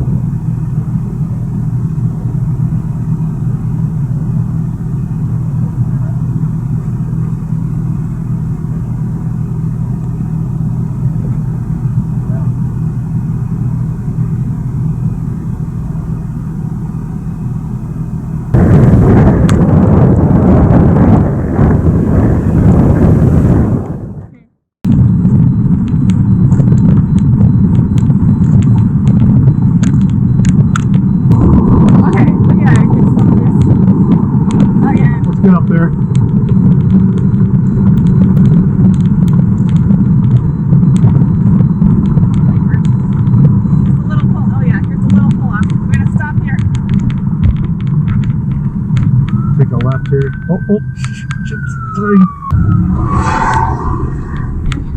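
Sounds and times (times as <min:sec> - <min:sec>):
vehicle low rumble: 0:00.0 - 0:54.9
wind buffeting microphone: 0:18.5 - 0:54.9.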